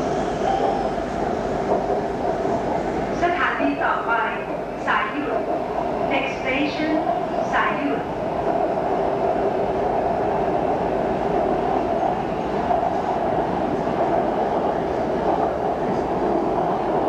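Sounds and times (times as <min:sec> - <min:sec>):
train carriage running rumble: 0:00.0 - 0:17.0.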